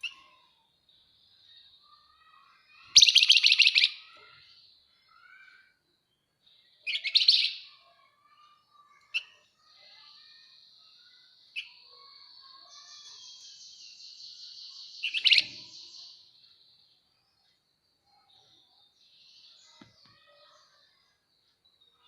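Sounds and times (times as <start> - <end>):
bird fast chattering song: 2.1 - 4.1, 6.9 - 10.4, 12.7 - 16.2
short sharp bird chirps: 2.3 - 4.3, 12.7 - 16.1.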